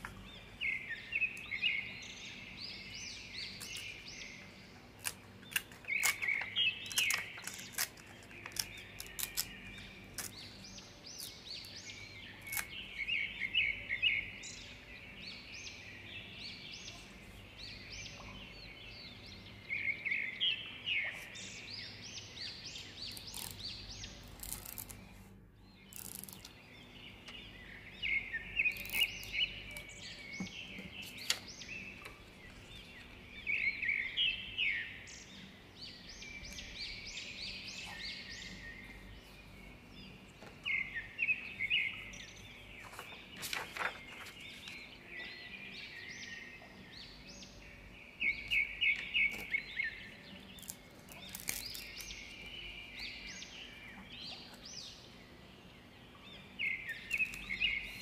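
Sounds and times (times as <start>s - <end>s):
small birds chirping: 0.0s - 58.0s
paper crinkling and tapping: 5.0s - 10.6s, 42.8s - 44.9s.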